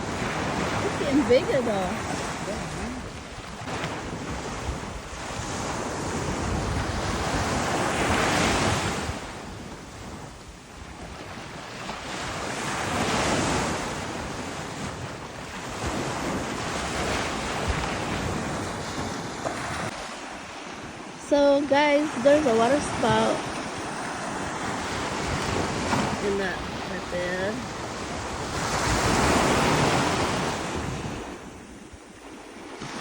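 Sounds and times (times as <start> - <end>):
wind and waves rushing: 0.0 - 33.0
wind buffeting microphone: 0.0 - 33.0.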